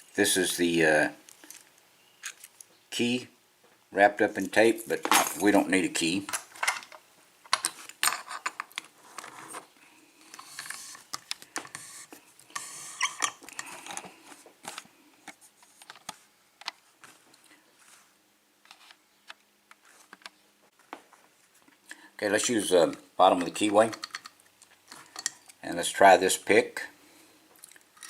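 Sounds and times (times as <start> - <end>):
rustling: 8.9 - 21.9
small metal clicks: 23.4 - 25.6.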